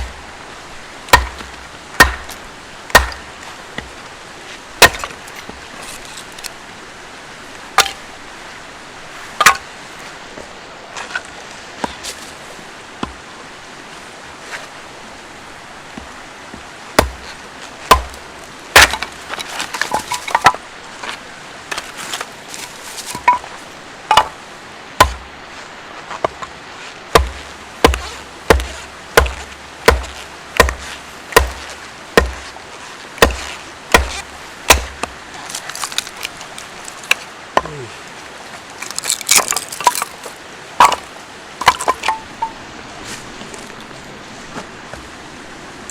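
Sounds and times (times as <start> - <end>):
axe striking firewood: 1.1 - 3.9, 4.8 - 5.2, 7.8 - 8.0, 9.4 - 9.7, 17.0 - 20.6, 23.1 - 23.5, 24.1 - 24.4, 25.0 - 25.2, 27.1 - 32.6, 33.2 - 36.2, 40.8 - 42.5.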